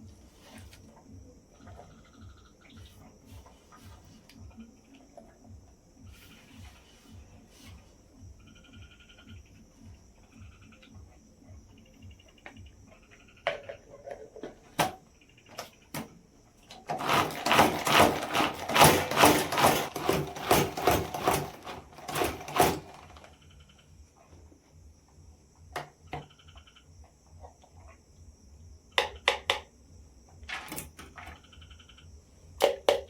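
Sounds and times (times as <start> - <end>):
insect trilling: 1.0 - 7.4, 8.0 - 14.4, 15.0 - 15.9, 23.3 - 29.3, 31.3 - 32.6
rapid irregular clicks and scrapes: 16.8 - 23.8.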